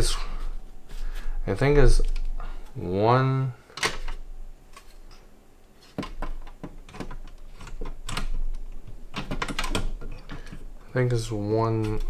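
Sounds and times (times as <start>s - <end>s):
pc case panel clicks and knocks: 5.9s - 11.2s.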